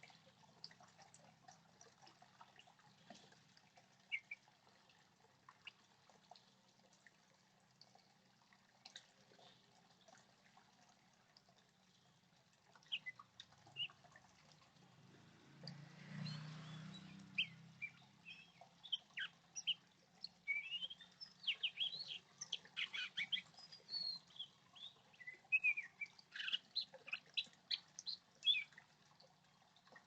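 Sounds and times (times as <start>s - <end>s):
faint bird chirps: 4.1s - 4.5s, 12.8s - 14.0s, 16.2s - 28.8s.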